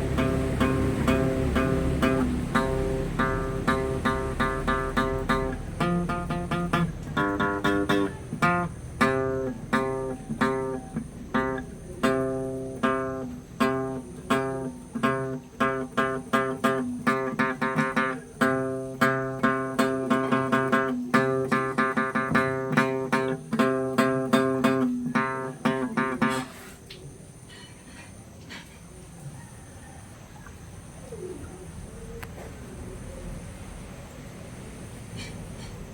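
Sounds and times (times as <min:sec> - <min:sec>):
guitar solo: 0:00.0 - 0:26.4.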